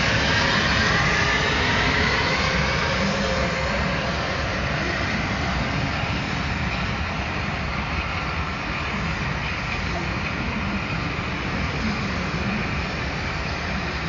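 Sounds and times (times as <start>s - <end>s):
diesel locomotive engine rumbling: 0.0s - 14.0s.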